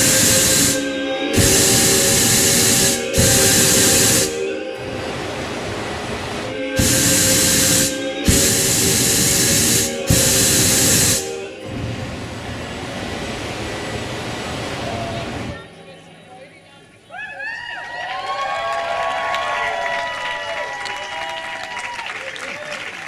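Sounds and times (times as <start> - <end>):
hissing flame jets: 0.0 - 15.6.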